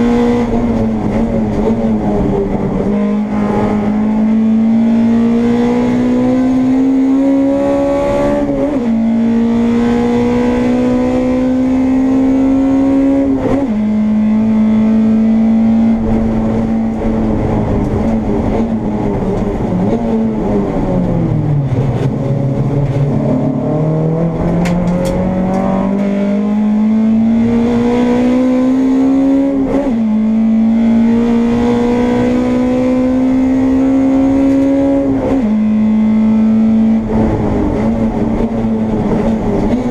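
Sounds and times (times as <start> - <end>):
race car engine accelerating: 0.0 - 39.9.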